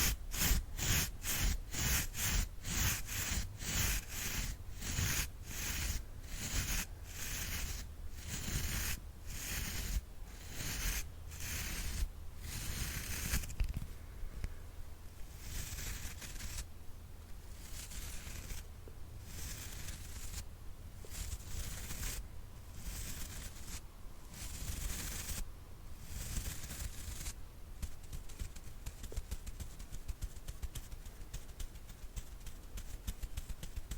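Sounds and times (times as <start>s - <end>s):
brush sweeping strokes: 0.0s - 13.5s, 17.6s - 18.6s, 19.3s - 20.4s.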